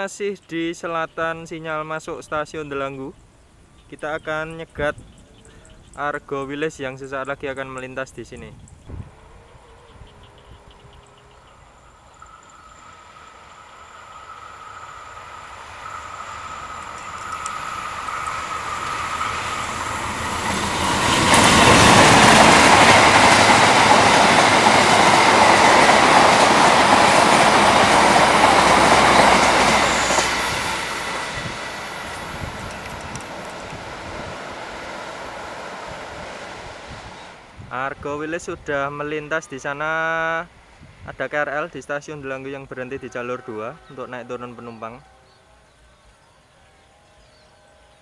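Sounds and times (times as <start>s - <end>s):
train passing at speed: 8.8s - 38.6s, 41.7s - 48.0s.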